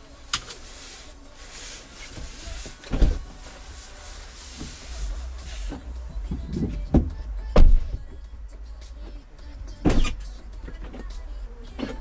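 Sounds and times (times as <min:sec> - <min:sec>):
car road rumble: 0:00.0 - 0:12.0
sharp thumps: 0:05.7 - 0:08.2.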